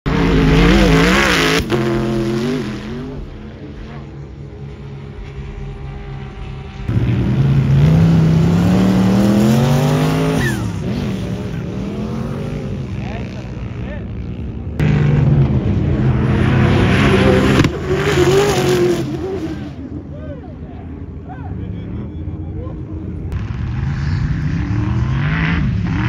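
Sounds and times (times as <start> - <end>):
drag car engine revving: 0.1 - 20.1.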